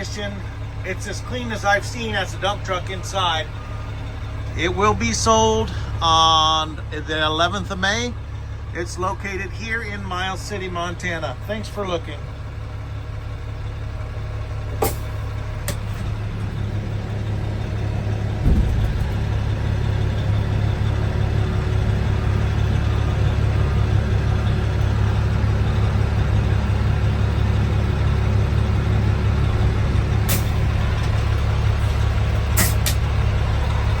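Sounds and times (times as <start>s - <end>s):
diesel truck engine rumbling: 0.0s - 34.0s
thump: 18.4s - 19.1s.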